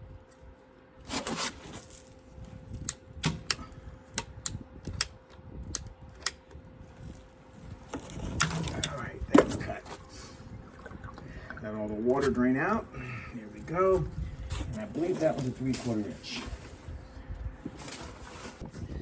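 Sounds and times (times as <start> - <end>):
pipe cutter clicking and snapping: 2.8 - 6.4.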